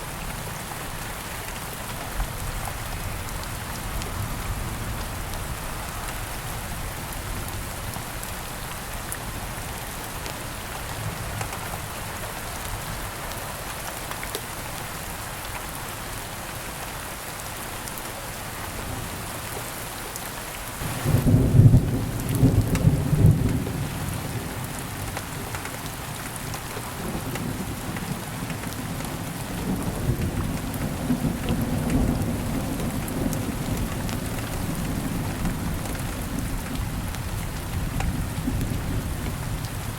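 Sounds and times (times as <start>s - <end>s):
steady rain falling: 0.0s - 39.9s
thunder rumbling: 20.8s - 24.6s.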